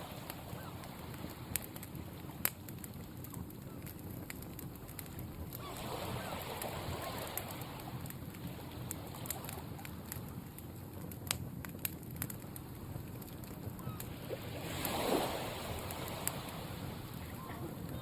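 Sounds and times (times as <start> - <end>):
sea waves washing: 0.0 - 2.6, 5.4 - 10.1, 13.8 - 18.0
campfire crackling and popping: 0.0 - 18.0.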